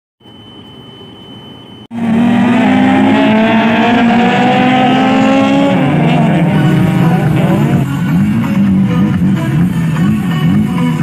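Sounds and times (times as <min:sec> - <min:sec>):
racing car engine revving: 0:01.9 - 0:10.6.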